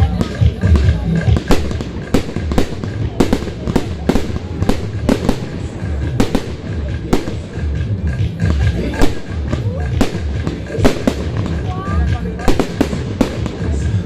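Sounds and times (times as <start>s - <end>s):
fireworks bursting: 0.0s - 14.0s
music with low beat: 0.0s - 14.0s.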